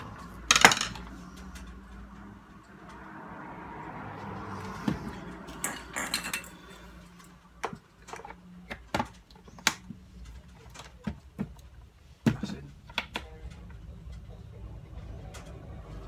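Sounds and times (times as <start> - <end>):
small parts clinking and knocking: 0.1 - 2.0, 5.5 - 11.4.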